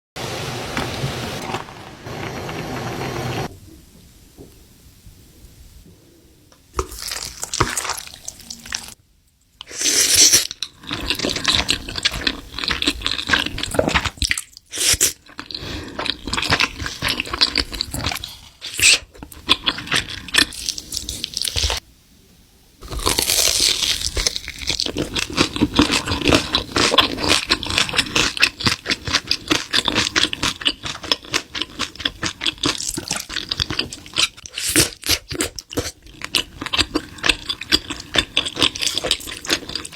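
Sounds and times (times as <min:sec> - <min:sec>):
crunchy chewing: 0:09.6 - 0:21.8, 0:22.8 - 0:39.9.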